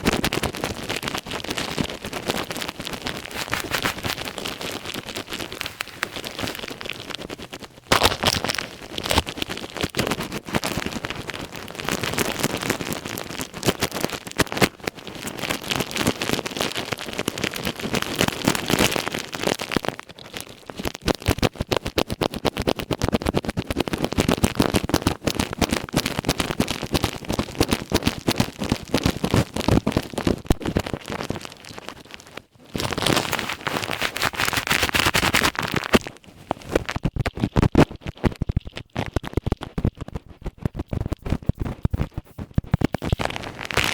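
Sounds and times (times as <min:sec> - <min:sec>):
ear pick scraping plastic: 0:01.6 - 0:11.2, 0:29.0 - 0:43.9.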